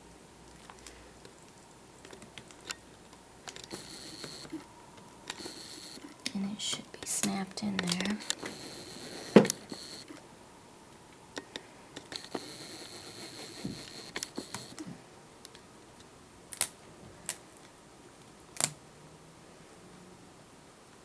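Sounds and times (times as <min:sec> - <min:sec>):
sharp plastic clicks: 0:06.2 - 0:08.6, 0:18.6 - 0:18.8.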